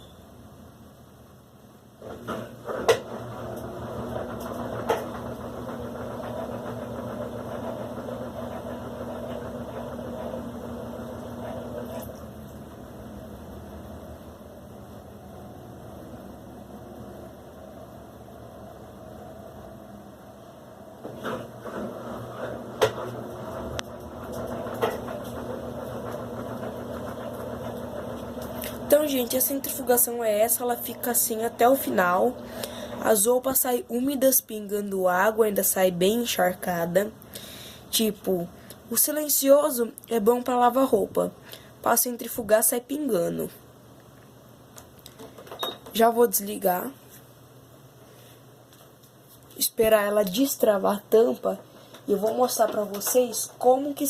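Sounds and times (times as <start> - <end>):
washing machine motor humming: 1.9 - 37.2
washing machine motor knocking: 2.2 - 11.9, 22.6 - 28.9.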